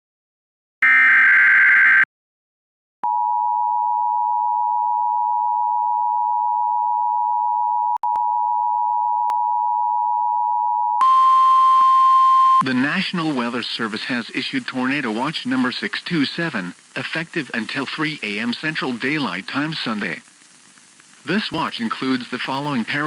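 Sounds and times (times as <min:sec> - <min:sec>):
buzzy data burst: 0:21.5 - 0:23.0.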